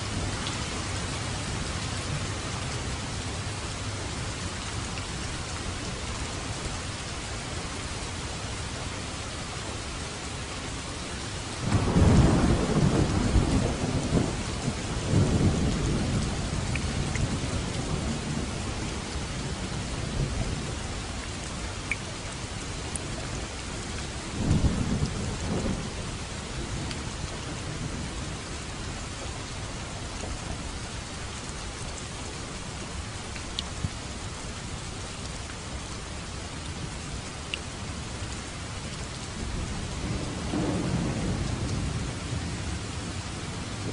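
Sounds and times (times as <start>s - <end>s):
steady rain: 0.0s - 43.9s
thunder rumbling: 11.6s - 20.8s, 24.3s - 29.0s, 39.3s - 43.9s.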